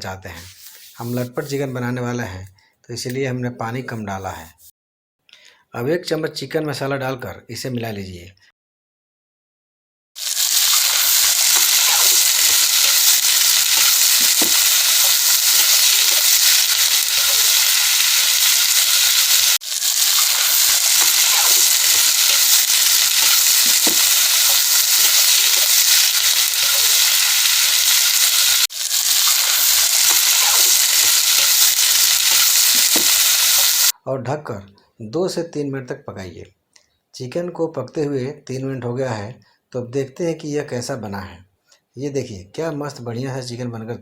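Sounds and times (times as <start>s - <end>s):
curry sizzling in a pan: 10.2s - 34.0s.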